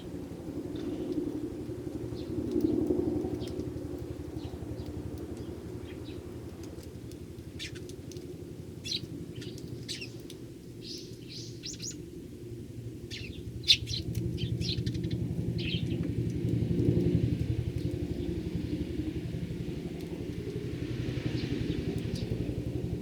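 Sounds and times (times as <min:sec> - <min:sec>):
sparrows chirping: 0:02.1 - 0:06.7, 0:07.4 - 0:12.1, 0:13.0 - 0:16.1, 0:21.2 - 0:23.0
low steady rumble: 0:12.6 - 0:23.0.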